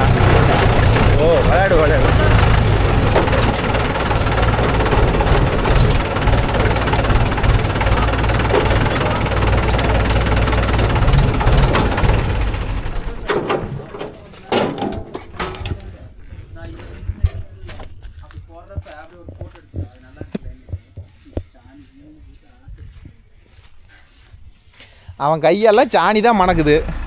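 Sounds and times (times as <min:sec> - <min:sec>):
sharp knocks: 0:00.0 - 0:15.8
heavy diesel engine running: 0:00.0 - 0:17.1, 0:26.4 - 0:27.0.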